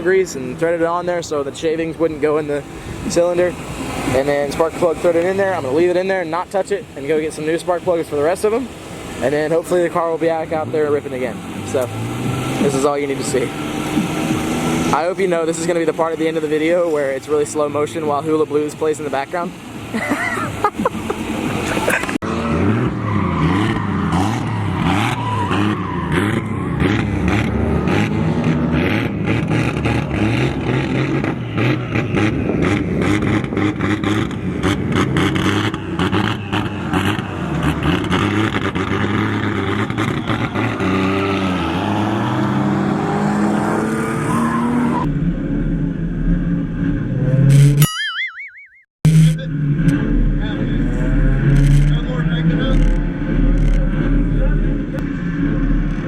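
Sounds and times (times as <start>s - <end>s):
car engines revving: 0.0s - 47.8s, 49.1s - 56.0s
tyre squeal: 22.8s - 27.1s
sharp exhaust pops: 26.8s - 41.1s
short warbling tone: 47.8s - 50.2s.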